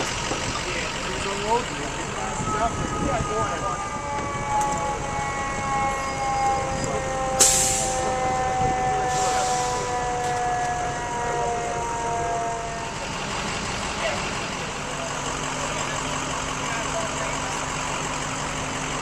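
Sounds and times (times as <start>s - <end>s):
emergency siren winding down: 0.0s - 18.8s
engine and traffic rumble: 0.0s - 19.0s
loud hiss of air: 7.4s - 8.0s, 9.1s - 9.8s.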